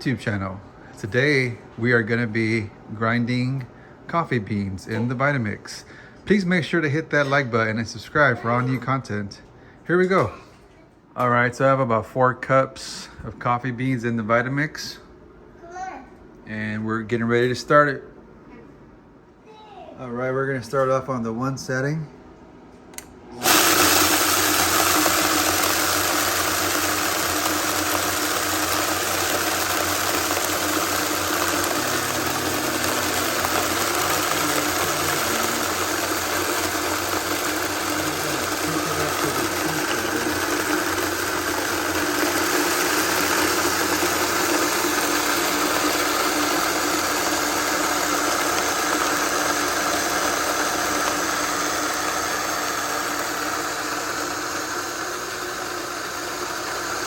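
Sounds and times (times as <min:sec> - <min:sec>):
blender grinding coffee beans: 0:23.4 - 0:57.0.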